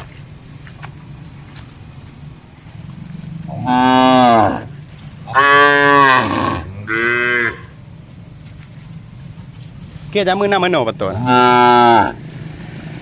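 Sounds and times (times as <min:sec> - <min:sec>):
cow mooing: 0:03.4 - 0:07.8, 0:11.0 - 0:12.2.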